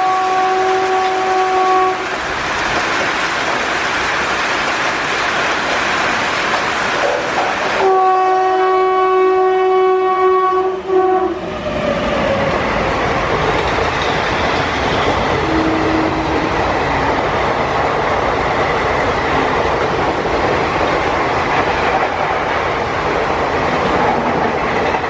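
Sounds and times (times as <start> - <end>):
train horn: 0.0 - 2.1, 7.8 - 12.0, 15.4 - 16.6
heavy rain: 0.0 - 25.0
train passing rumble: 0.0 - 25.0
wheels clattering over rail joints: 13.3 - 15.4.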